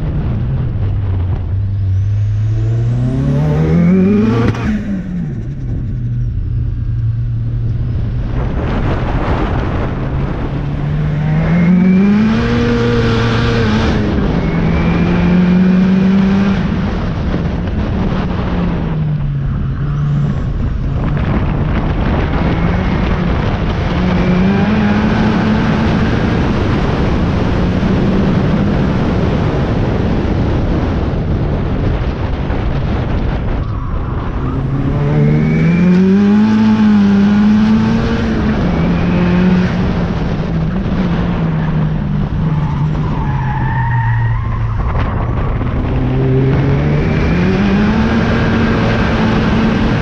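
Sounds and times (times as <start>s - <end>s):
car engine accelerating: 0.0s - 50.0s.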